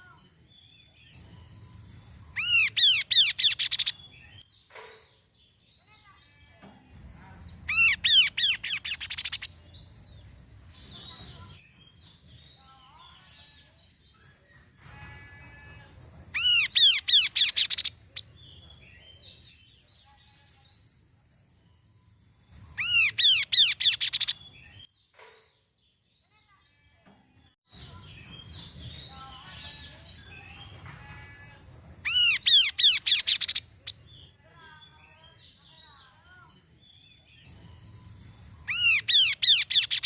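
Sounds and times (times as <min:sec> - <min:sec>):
soft bird chirps: 0:00.0 - 0:40.0
bird whistling song: 0:00.6 - 0:04.5, 0:07.6 - 0:10.1, 0:16.3 - 0:21.0, 0:22.0 - 0:24.9, 0:32.0 - 0:34.4, 0:37.0 - 0:40.0.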